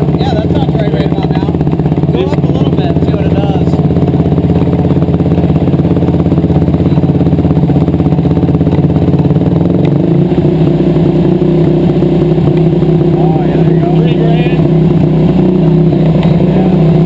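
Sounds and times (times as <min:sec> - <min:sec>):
single-cylinder engine running: 0:00.0 - 0:17.0.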